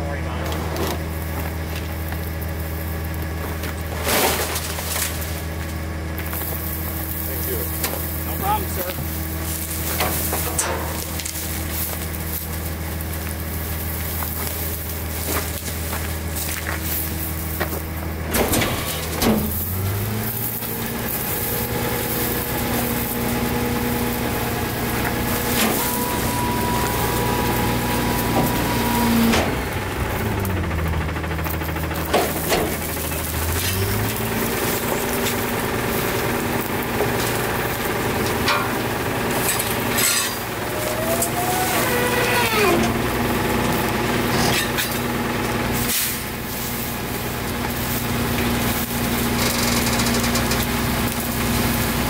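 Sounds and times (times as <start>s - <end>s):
garbage truck engine: 0.0s - 52.0s
faint whine: 20.6s - 33.4s.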